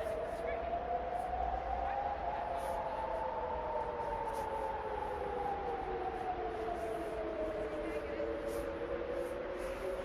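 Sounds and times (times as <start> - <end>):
distant siren wailing: 0.0 - 10.0.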